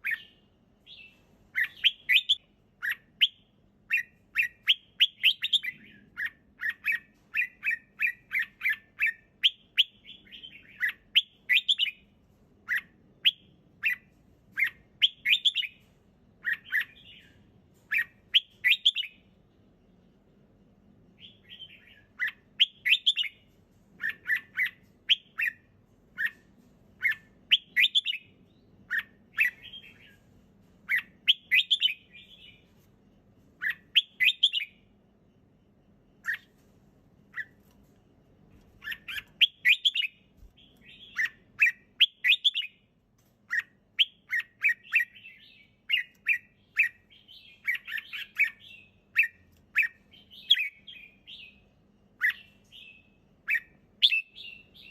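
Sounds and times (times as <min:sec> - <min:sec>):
bulbul singing: 0:38.8 - 0:42.8.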